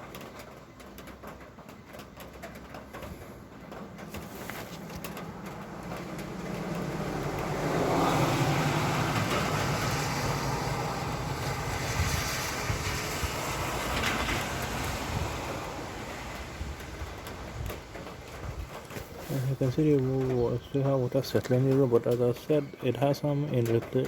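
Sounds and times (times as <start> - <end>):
vehicle engine rumble: 0.0 - 22.9
tyre hiss on wet road: 4.2 - 19.7.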